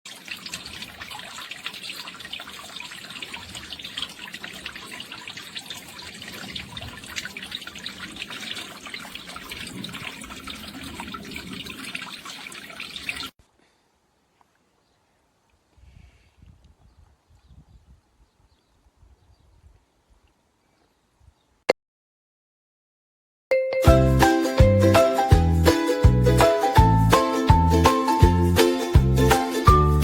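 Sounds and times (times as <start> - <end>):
fountain water splashing: 0.1 - 13.3.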